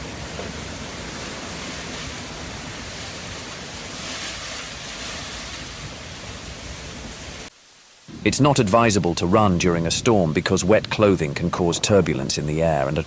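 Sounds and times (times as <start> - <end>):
wind rushing over microphone: 8.1 - 13.0.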